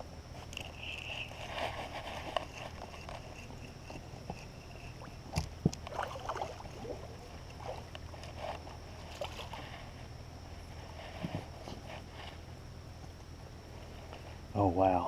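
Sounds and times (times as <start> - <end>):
steady low hum: 0.0 - 15.0
water sounds: 3.4 - 8.4.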